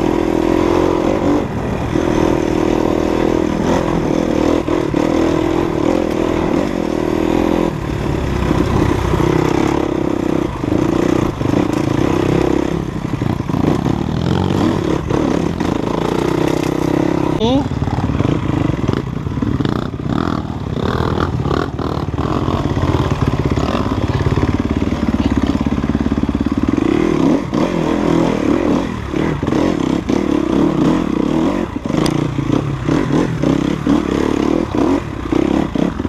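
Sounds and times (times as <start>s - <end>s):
motorcycle engine revving: 0.0s - 36.0s
bike knocking and rattling: 8.0s - 27.0s.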